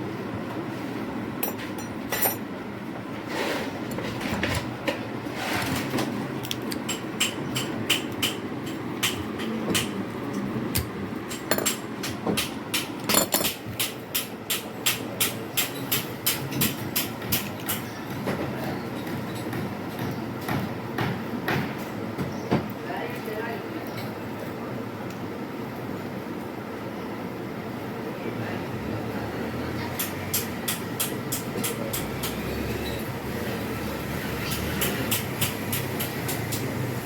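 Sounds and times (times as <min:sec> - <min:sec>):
hammer tapping on metal: 0:06.7 - 0:10.0, 0:10.8 - 0:18.3, 0:29.9 - 0:33.0, 0:34.5 - 0:36.8.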